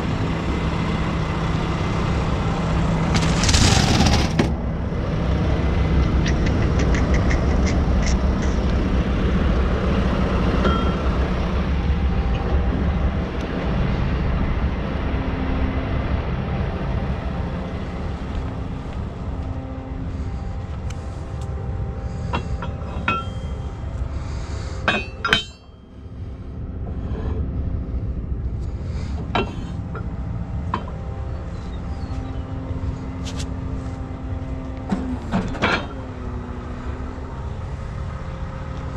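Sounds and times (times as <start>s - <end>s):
diesel truck engine rumbling: 0.0s - 38.9s
ringing metal clank: 10.6s - 11.1s, 22.3s - 23.8s, 24.8s - 25.9s
metallic clinks and clanks: 22.3s - 23.7s, 24.8s - 25.9s.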